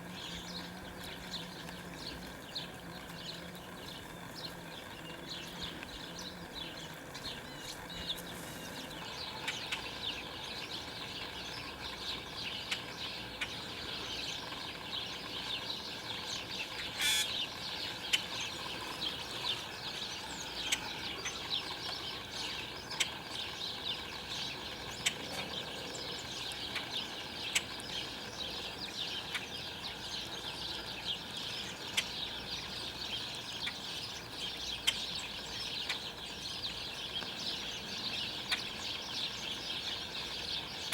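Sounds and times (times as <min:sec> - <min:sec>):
songbirds chirping: 0:00.0 - 0:40.9
loud harsh bird call: 0:16.9 - 0:17.4.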